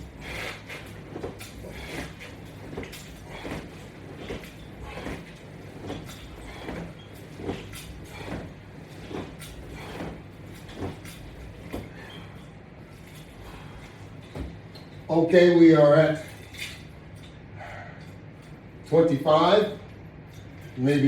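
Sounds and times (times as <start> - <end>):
sit-up movement sounds: 0.0 - 15.2
steady low hum: 0.0 - 21.0.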